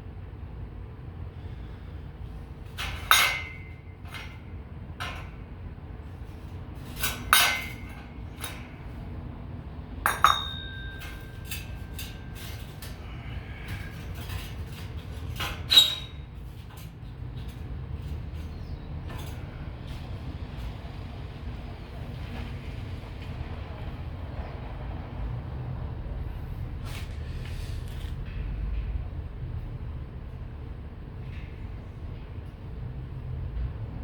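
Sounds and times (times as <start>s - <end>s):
steady low hum: 0.0s - 34.0s
scrap steel clanking: 2.5s - 9.2s, 9.8s - 22.6s.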